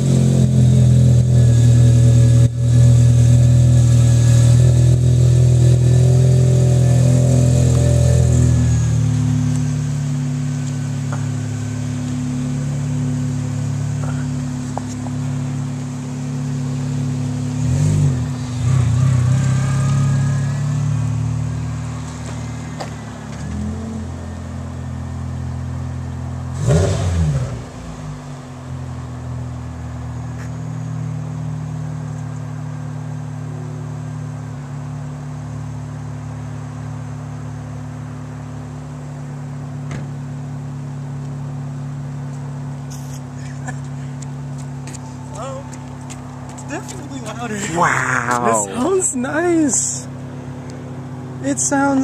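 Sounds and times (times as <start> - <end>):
car engine idling and revving: 0.0 - 52.0.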